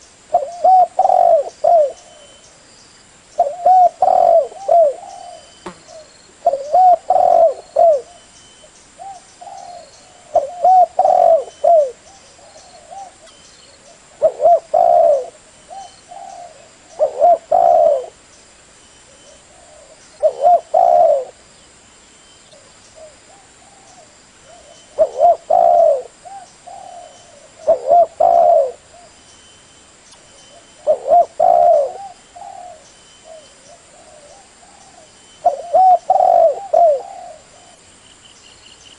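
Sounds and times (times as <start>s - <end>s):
dove cooing: 0.3s - 2.4s, 3.4s - 8.3s, 9.0s - 18.2s, 19.1s - 21.4s, 22.6s - 29.2s, 30.5s - 37.8s.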